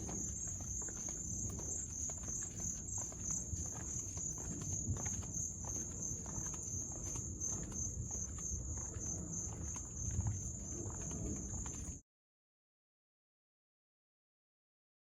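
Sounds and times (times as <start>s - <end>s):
footsteps walking: 0.0s - 12.0s.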